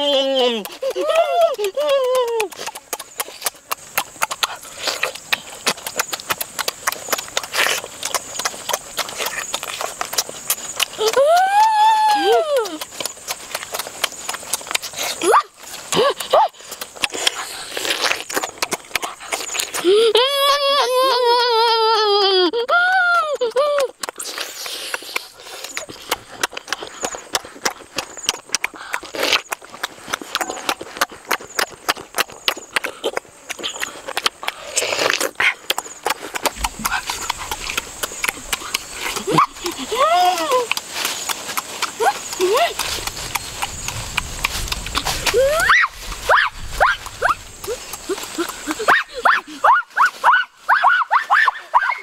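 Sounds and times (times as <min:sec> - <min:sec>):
boy humming: 0:00.0 - 0:02.6, 0:11.0 - 0:12.8, 0:19.8 - 0:23.9, 0:39.2 - 0:40.8, 0:45.2 - 0:45.7
wet chewing and lip-smacking: 0:00.0 - 0:20.3, 0:22.2 - 0:52.0.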